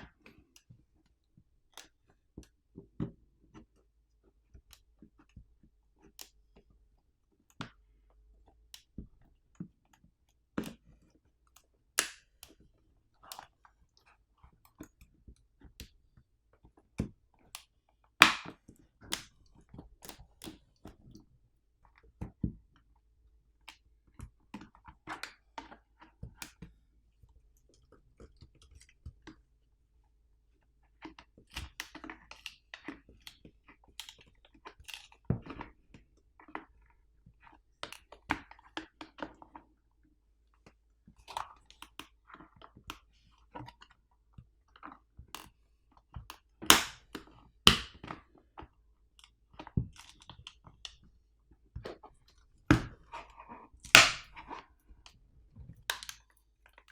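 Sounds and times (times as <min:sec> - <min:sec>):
plastic parts clicking and knocking: 0:55.7 - 0:56.9.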